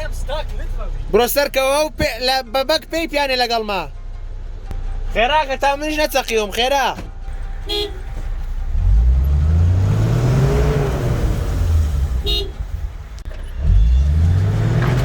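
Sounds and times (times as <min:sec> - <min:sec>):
horn toot: 0:07.3 - 0:09.8, 0:12.1 - 0:12.9
off-road vehicle engine revving: 0:07.3 - 0:15.0.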